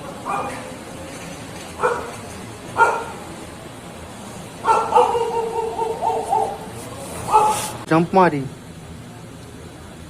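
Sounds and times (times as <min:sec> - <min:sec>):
animal yelping: 0:04.7 - 0:07.8.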